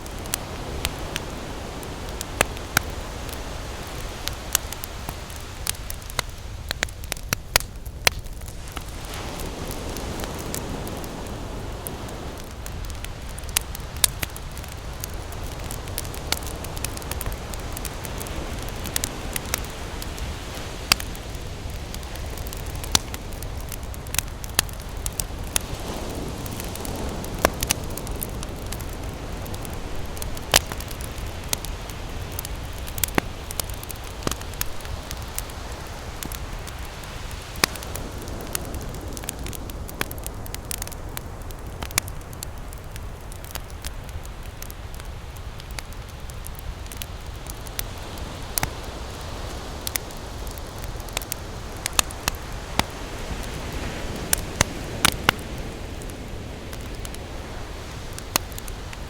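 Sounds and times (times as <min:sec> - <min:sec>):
campfire crackling and popping: 0:00.0 - 0:59.0
ocean waves rushing: 0:08.5 - 0:13.0, 0:13.6 - 0:39.8.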